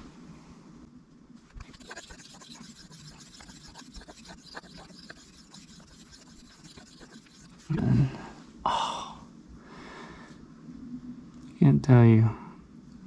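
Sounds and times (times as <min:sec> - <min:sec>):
knife rubbing on whetstone: 0:01.6 - 0:07.9.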